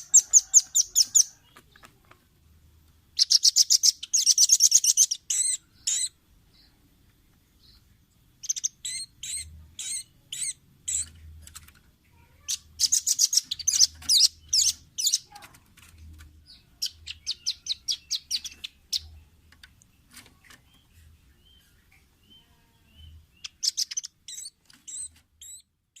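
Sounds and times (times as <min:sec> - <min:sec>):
nuthatch calling in rattling trills: 0:03.2 - 0:06.2, 0:08.4 - 0:11.1, 0:12.5 - 0:15.3, 0:16.5 - 0:19.1, 0:23.4 - 0:25.7.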